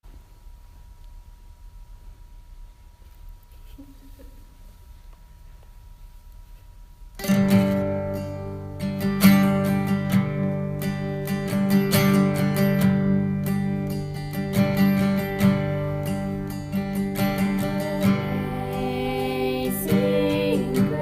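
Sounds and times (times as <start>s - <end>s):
acoustic guitar strummed and plucked: 7.2s - 21.0s.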